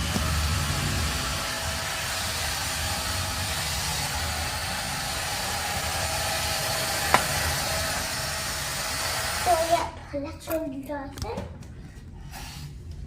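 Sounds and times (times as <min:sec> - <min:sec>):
vacuum cleaner running: 0:00.0 - 0:09.9.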